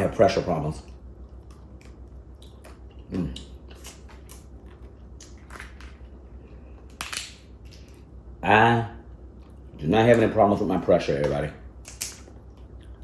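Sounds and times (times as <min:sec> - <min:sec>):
crab shell cracking: 0:06.8 - 0:08.0, 0:11.2 - 0:12.8.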